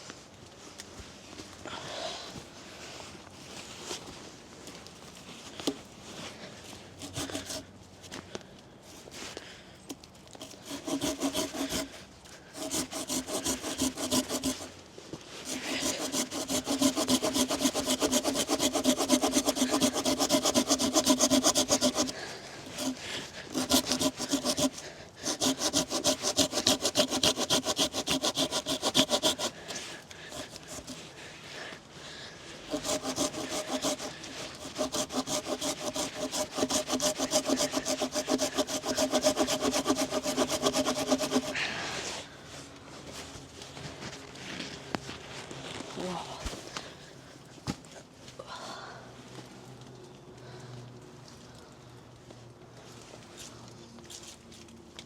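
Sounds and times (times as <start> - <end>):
hand saw cutting log: 7.0 - 7.7, 10.4 - 31.8, 32.5 - 42.2.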